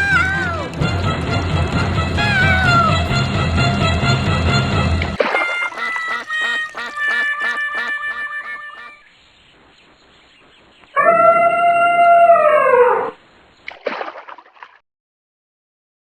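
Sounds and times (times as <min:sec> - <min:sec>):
cartoon duck quacks: 0:02.1 - 0:03.1, 0:05.5 - 0:09.1
long animal call: 0:05.7 - 0:09.1.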